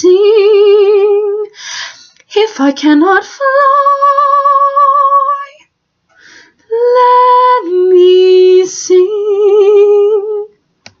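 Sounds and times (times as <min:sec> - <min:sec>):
woman singing with vibrato: 0:00.0 - 0:01.6, 0:02.3 - 0:05.7, 0:06.7 - 0:10.6
woman taking a breath: 0:06.1 - 0:06.6.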